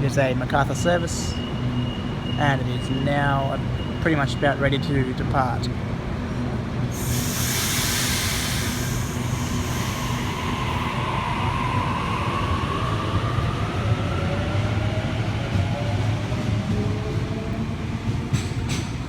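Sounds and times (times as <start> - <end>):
train low rumble: 0.0 - 19.0
air hissing: 6.9 - 12.2.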